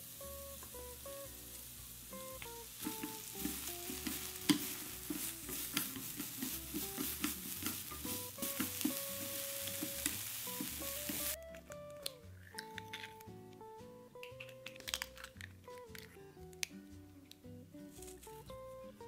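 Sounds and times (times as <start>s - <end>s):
carrots sizzling in a frying pan: 0.0s - 11.4s
chopsticks clicking against a pan: 2.2s - 13.2s.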